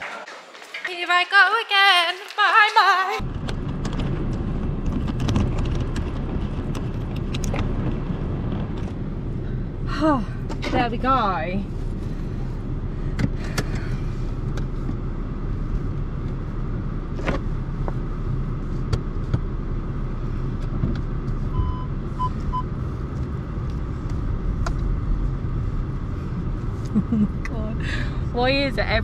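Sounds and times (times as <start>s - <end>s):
car engine hum inside cabin: 3.2s - 29.0s.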